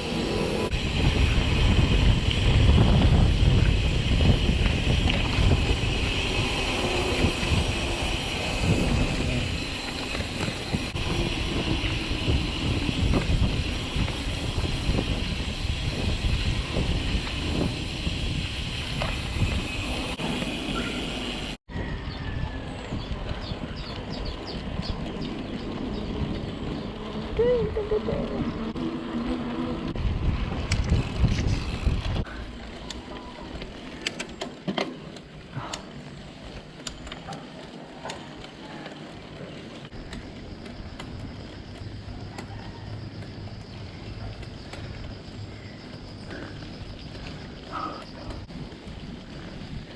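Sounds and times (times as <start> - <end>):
low drone: 0.0 - 13.8
wind rumbling on microphone: 0.0 - 34.1, 39.8 - 49.9
bike tyre noise on rough road: 0.0 - 49.9
bike clicks and rattles: 0.2 - 21.1, 22.7 - 49.9.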